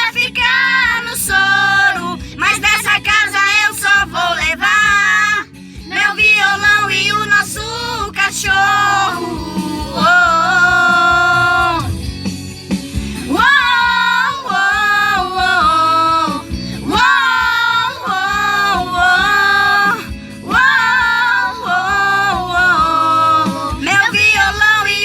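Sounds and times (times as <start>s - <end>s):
music: 0.0s - 25.0s
singer breathing: 2.2s - 2.4s, 5.5s - 5.9s, 12.8s - 13.3s, 16.5s - 16.9s, 20.0s - 20.5s.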